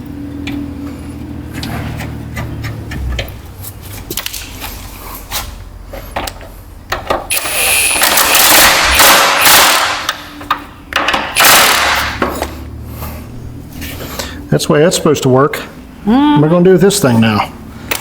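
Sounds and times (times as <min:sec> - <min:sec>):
impact wrench rattling: 0:07.1 - 0:10.4, 0:11.0 - 0:12.4.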